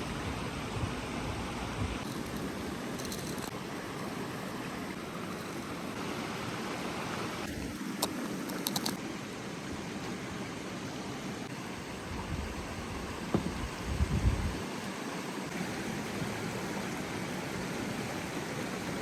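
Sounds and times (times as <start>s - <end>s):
sharp clicks: 8.0s - 9.0s.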